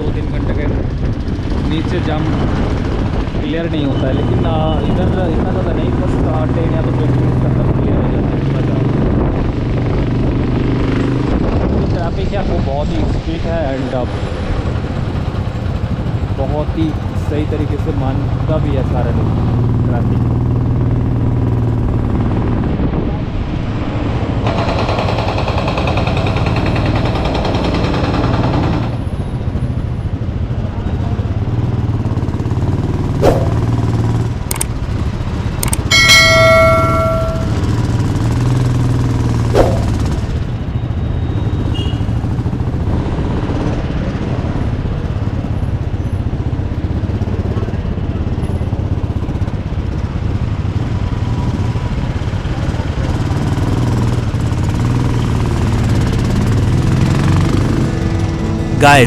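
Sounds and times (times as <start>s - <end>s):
motorcycle engine running: 31.6s - 40.5s
sharp clicks: 34.5s - 34.8s, 35.6s - 35.9s
vehicle horn: 41.7s - 42.2s.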